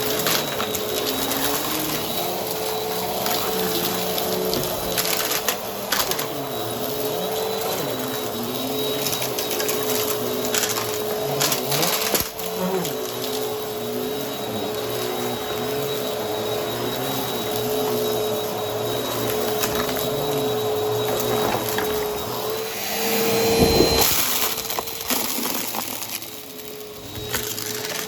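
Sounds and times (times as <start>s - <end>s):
vacuum cleaner running: 0.0s - 28.0s
debris crunching clicks: 23.6s - 28.0s.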